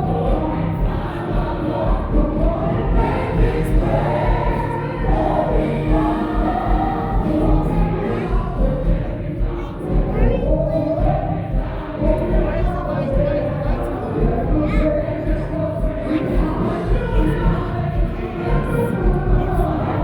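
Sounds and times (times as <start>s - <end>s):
gospel choir singing: 0.0s - 20.0s
pulsing bass beat: 0.0s - 20.0s.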